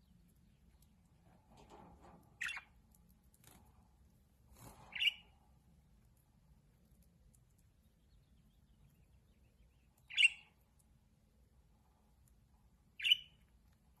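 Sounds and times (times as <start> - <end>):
parakeet calls: 2.4 - 2.7, 4.9 - 5.3, 10.1 - 10.5, 13.0 - 13.4.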